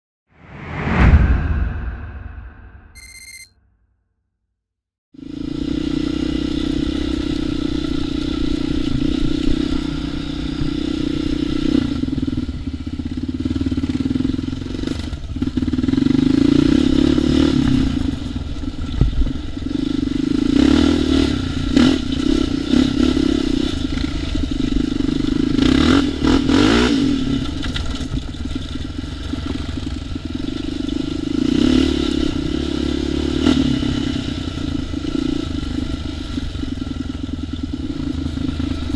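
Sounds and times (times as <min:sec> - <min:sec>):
quad bike engine revving: 0:05.2 - 0:18.5, 0:19.4 - 0:28.0, 0:29.1 - 0:38.9.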